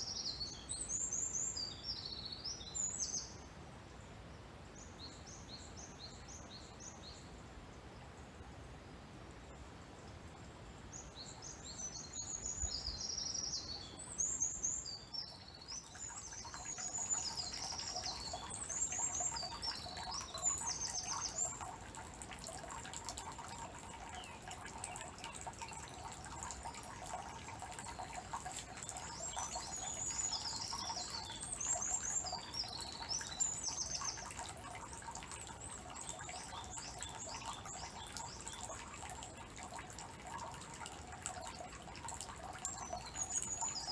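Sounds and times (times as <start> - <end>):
water trickling into stone basin: 11.0 - 43.9
songbirds trilling: 11.8 - 41.7.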